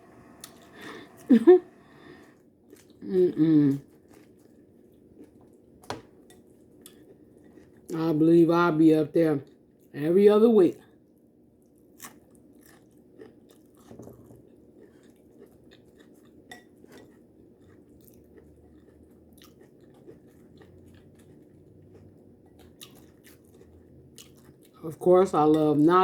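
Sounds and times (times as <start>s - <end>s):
person chewing crunchy food: 2.1s - 7.9s, 11.6s - 24.8s.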